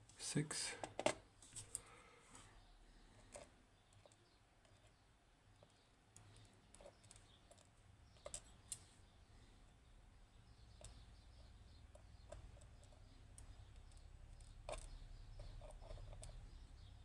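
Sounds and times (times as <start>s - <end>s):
small metal pins clicking: 5.5s - 8.9s, 11.9s - 16.4s.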